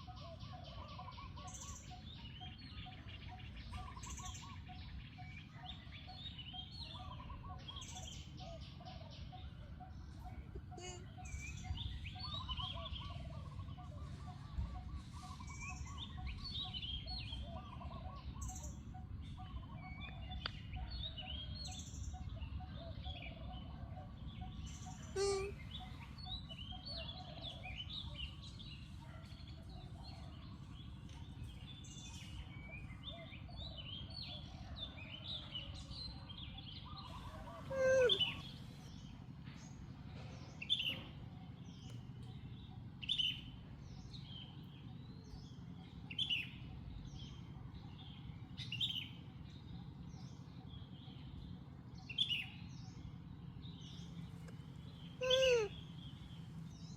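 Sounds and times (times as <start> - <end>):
high chirping animal calls: 0.0 - 20.2, 21.2 - 28.4, 36.8 - 39.4, 53.9 - 56.6
lower trilling calls: 0.0 - 20.4, 21.4 - 28.0, 36.5 - 39.4, 40.6 - 56.9.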